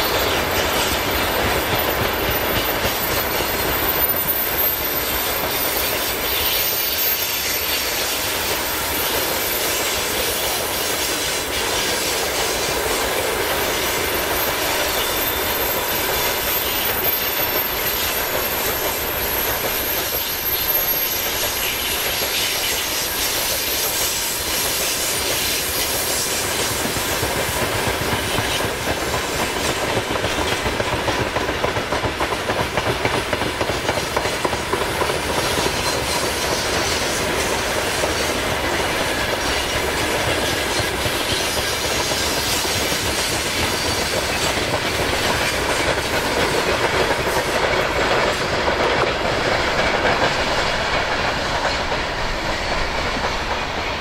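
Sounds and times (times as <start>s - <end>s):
clickety-clack over rail joints: 0.0s - 54.0s
steel wheels rumbling on rail: 0.0s - 54.0s
faint thin wheel squeal: 13.6s - 26.4s.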